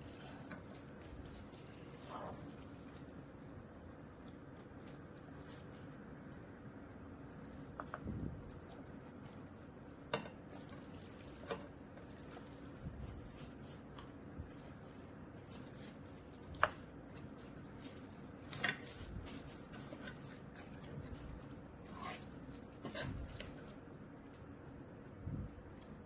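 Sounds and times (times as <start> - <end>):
low steady background noise: 0.0 - 26.0
utensils clinking against dishes: 18.4 - 20.8.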